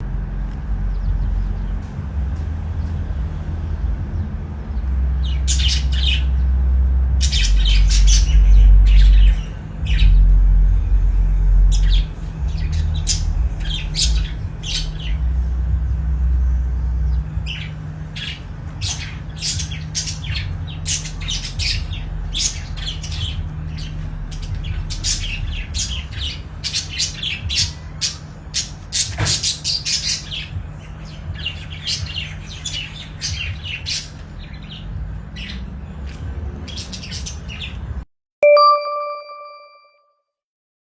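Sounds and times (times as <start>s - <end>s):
steady low rumble: 0.0s - 28.9s
birds chirping: 0.0s - 39.4s.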